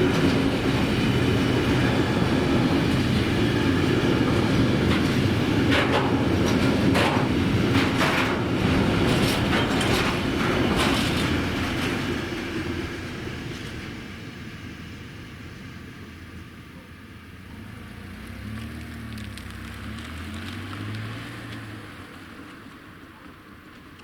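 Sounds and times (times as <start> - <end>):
freight train wagons clattering: 0.0 - 14.8.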